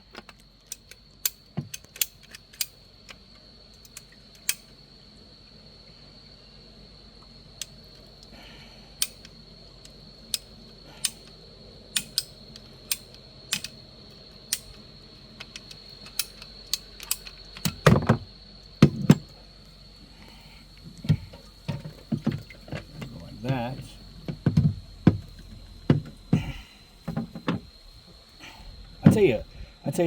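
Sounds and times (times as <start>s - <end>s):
faint steady high whine: 0.0s - 30.0s
hardware and plastic fittings clicking: 0.1s - 4.7s, 9.0s - 13.8s, 14.5s - 18.2s
heavier thumps: 17.8s - 19.4s, 20.9s - 29.7s.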